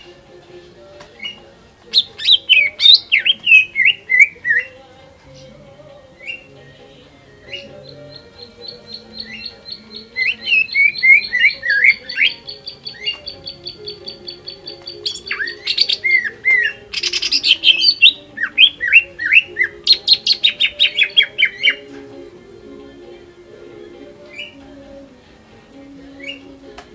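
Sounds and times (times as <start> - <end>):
bird singing fast varied song: 1.2 - 6.6, 7.3 - 21.9.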